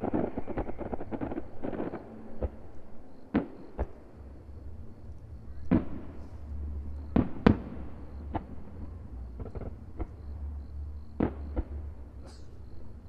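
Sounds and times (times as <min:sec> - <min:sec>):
fireworks bangs: 0:00.0 - 0:04.0, 0:05.6 - 0:10.2, 0:11.1 - 0:12.2
fireworks crackling: 0:00.0 - 0:10.5, 0:11.1 - 0:13.0
low rumble: 0:00.0 - 0:13.0.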